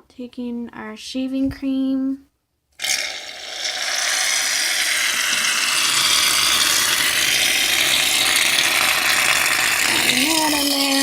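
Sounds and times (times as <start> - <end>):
aerosol can spraying foam: 2.8 - 11.0.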